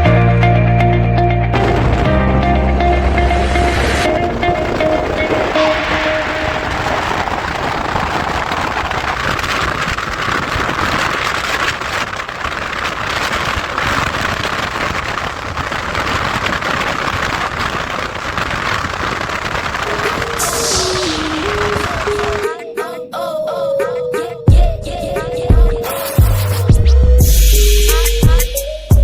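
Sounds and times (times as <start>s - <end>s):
wind buffeting microphone: 1.6s - 22.4s
rushing wind and road noise: 1.6s - 22.5s.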